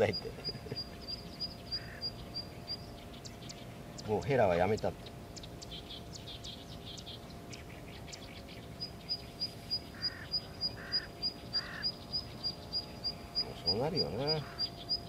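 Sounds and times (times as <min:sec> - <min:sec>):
bird harsh calls: 0:00.0 - 0:15.0
birds high chirps: 0:00.0 - 0:15.0
bird high pip repeated: 0:08.8 - 0:15.0.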